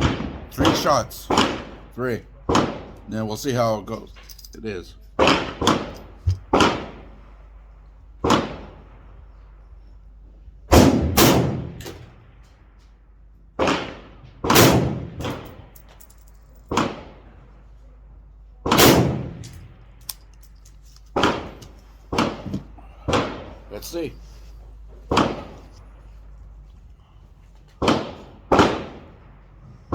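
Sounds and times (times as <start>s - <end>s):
rifle shots with echo: 0.0s - 3.2s, 5.2s - 7.4s, 8.2s - 9.2s, 10.7s - 12.5s, 13.6s - 15.8s, 16.7s - 17.5s, 18.6s - 20.4s, 21.1s - 24.0s, 25.1s - 26.0s, 27.8s - 29.9s.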